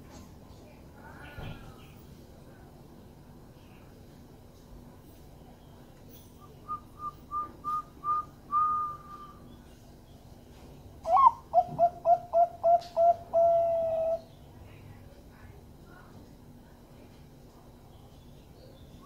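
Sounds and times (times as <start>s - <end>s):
dove cooing: 11.1s - 14.3s.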